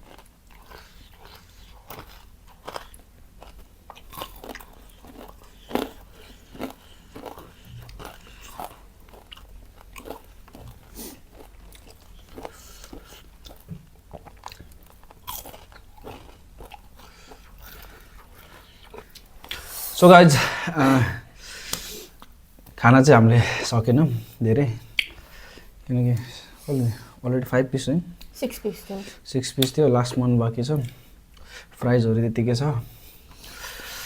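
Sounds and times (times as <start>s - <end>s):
chewing crunchy fried food: 0.0s - 20.0s.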